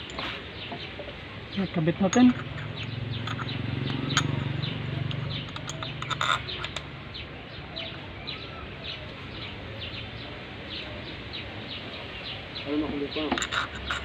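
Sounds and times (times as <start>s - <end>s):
bird chirping: 0.0s - 14.0s
metallic clinks of tools: 2.0s - 7.0s, 13.2s - 14.0s.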